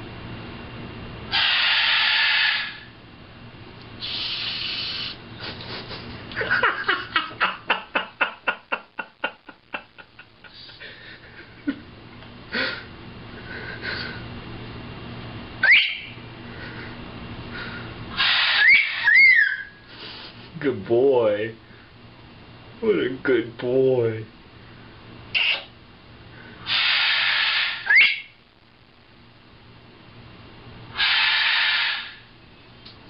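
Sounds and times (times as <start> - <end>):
bird hissing: 1.3 - 2.9, 4.0 - 6.0, 15.7 - 20.4, 26.6 - 28.3, 30.9 - 32.2
bird chirps: 15.6 - 16.2, 18.3 - 19.7, 26.8 - 28.4.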